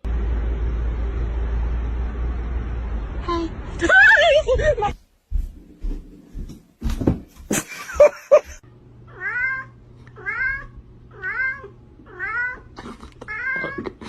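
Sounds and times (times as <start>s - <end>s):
cat meowing: 9.1s - 13.9s.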